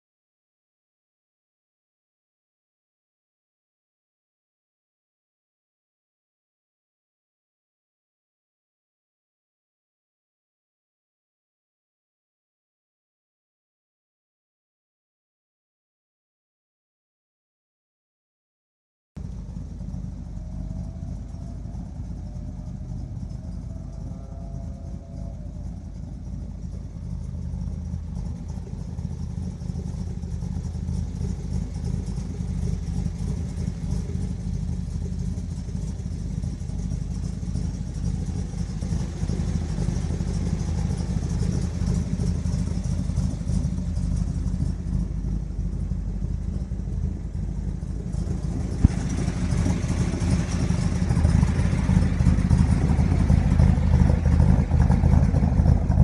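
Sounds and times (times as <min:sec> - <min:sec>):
car engine idling: 0:19.2 - 0:56.0.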